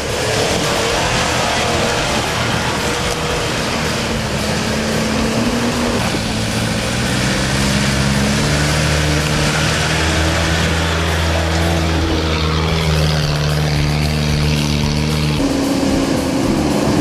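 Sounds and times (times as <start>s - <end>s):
off-road engine under load: 0.0s - 17.0s
steady rushing noise: 0.0s - 17.0s.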